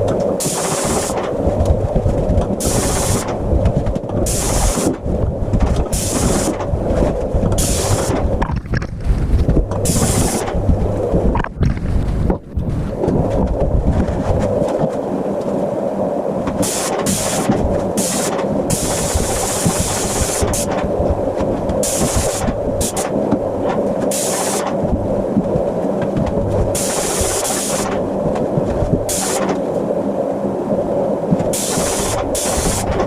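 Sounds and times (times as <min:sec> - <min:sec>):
steady mechanical drone: 0:00.0 - 0:33.0.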